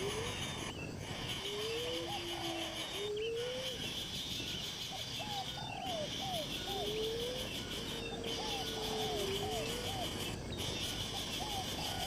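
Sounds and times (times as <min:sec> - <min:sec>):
bird whistling calls: 0:00.0 - 0:12.0
high-pitched insect drone: 0:00.0 - 0:12.0.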